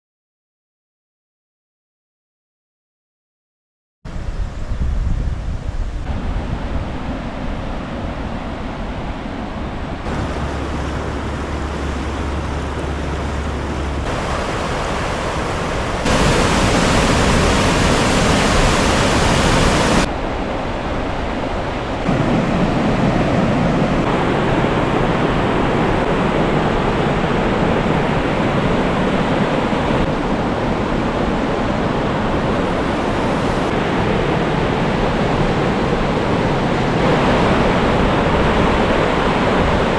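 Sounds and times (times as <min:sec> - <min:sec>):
waterfall roaring: 0:06.0 - 0:39.9.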